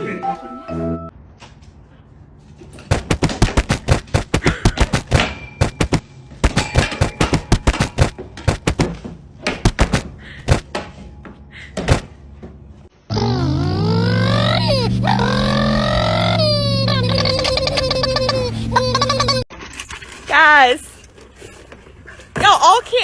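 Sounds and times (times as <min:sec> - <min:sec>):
rapid sharp knocks and thuds: 0:02.9 - 0:10.7.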